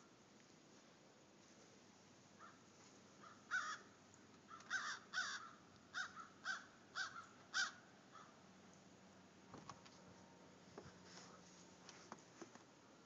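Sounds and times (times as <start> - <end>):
bird calling: 3.2 - 3.9, 4.5 - 8.4.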